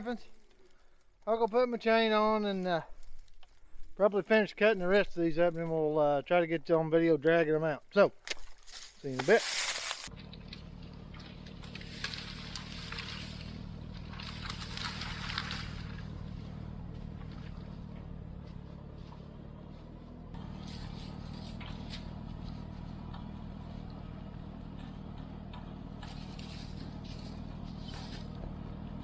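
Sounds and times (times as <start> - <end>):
tractor engine running: 9.3 - 29.0
scraping and clinking: 20.4 - 29.0.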